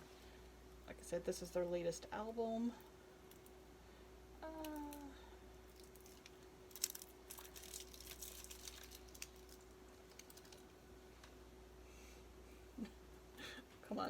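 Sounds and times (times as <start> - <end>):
faint steady hum: 0.0 - 14.0
falling-pitched voice hum: 4.4 - 5.3
plastic wrap crinkling: 5.7 - 10.8.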